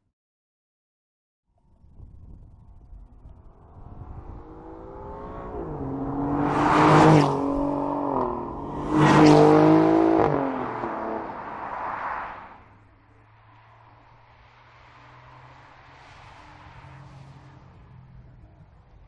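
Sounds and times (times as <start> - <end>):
car engine accelerating hard: 2.6 - 13.2.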